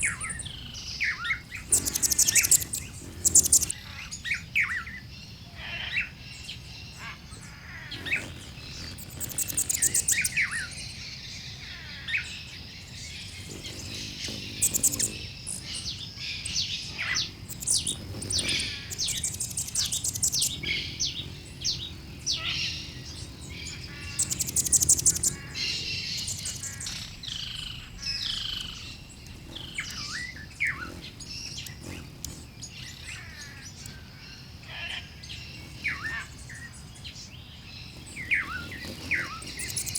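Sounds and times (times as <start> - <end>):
down-slurred bird whistles: 0.0 - 3.7
rapid high bird trills: 0.0 - 4.8, 6.9 - 37.2, 37.9 - 39.9
birds chirping and calling: 0.0 - 39.9.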